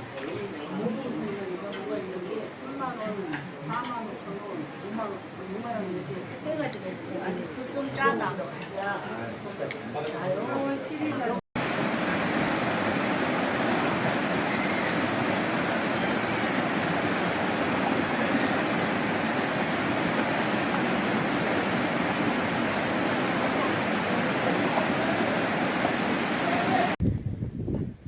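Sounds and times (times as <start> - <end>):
stream water rushing: 10.9 - 27.0.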